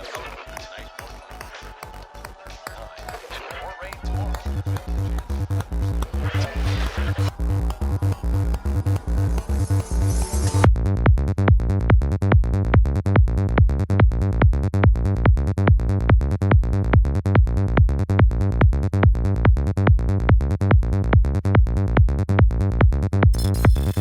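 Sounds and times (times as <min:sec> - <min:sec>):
psytrance track: 0:00.0 - 0:10.8, 0:23.4 - 0:24.0
rolling bassline: 0:00.0 - 0:24.0
four-on-the-floor kick drum: 0:00.1 - 0:23.4.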